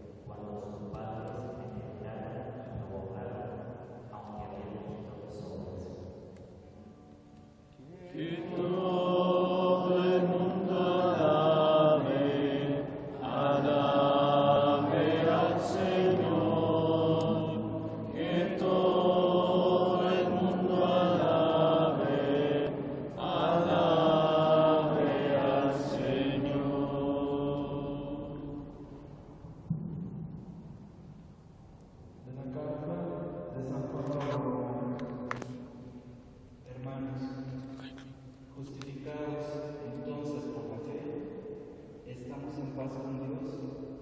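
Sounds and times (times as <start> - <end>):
voices singing a meditative chant: 7.8 - 29.1.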